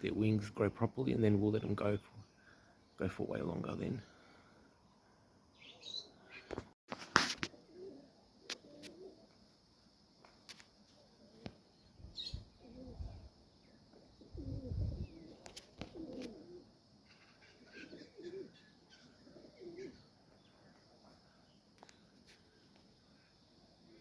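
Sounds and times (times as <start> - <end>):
pigeons cooing: 7.4 - 9.4, 12.2 - 13.3, 13.9 - 20.2.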